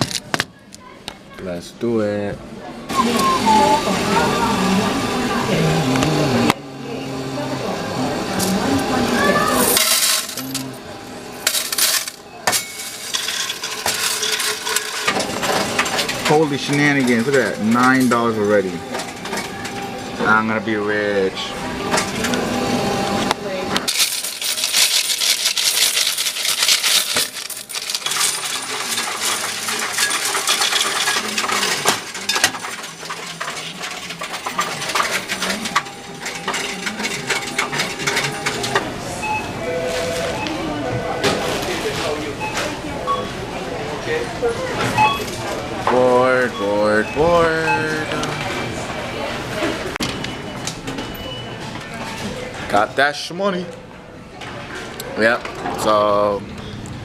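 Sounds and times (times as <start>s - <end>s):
coins clattering into machine: 9.4s - 10.8s, 11.4s - 20.0s, 23.9s - 38.9s.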